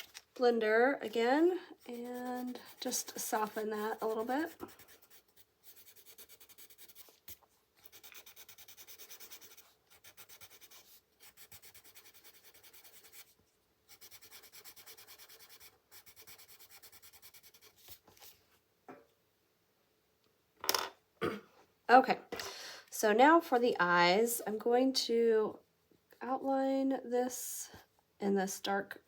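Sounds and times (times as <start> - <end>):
pencil rubbing on paper: 1.7 - 13.3, 13.9 - 18.3.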